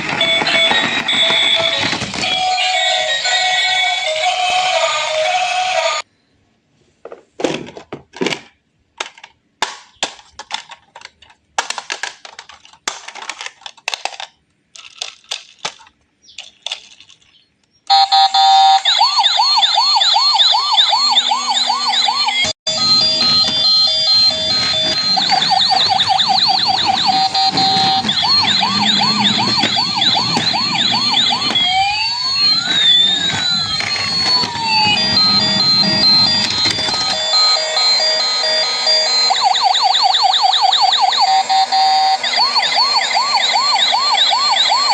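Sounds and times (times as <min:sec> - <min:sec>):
plastic clicks and rattles: 0:07.6 - 0:17.8
toy electronic siren warbling: 0:17.9 - 0:44.9.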